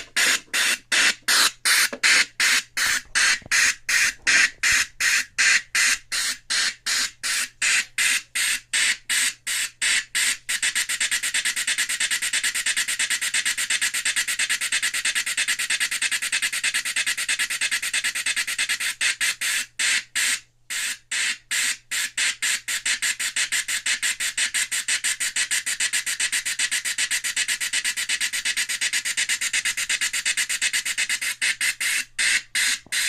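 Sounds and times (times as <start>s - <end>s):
steam engine chuffs from speaker: 31.0s - 33.0s.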